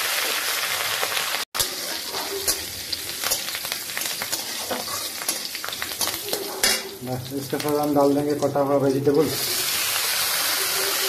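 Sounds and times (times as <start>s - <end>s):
spices sizzling in hot oil: 0.0s - 11.0s
steel spatula scraping pan: 1.6s - 7.0s.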